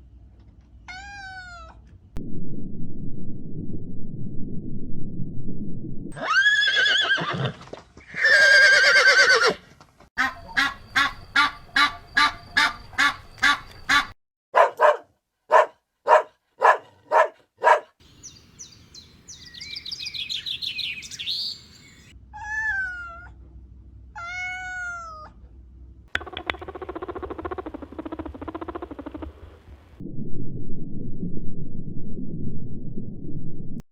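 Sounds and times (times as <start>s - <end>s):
high chirping: 18.0s - 22.1s
swooping animal calls: 26.6s - 29.6s.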